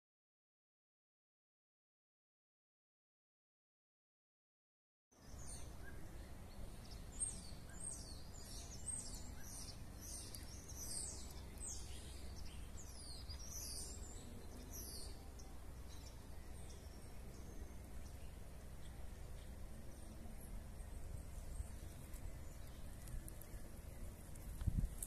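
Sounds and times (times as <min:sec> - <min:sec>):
low steady rumble: 0:05.2 - 0:25.0
songbirds chirping: 0:05.2 - 0:25.0.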